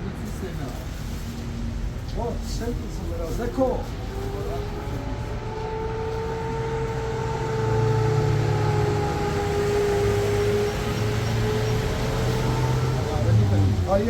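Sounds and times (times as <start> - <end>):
whining tone: 3.9 - 13.9.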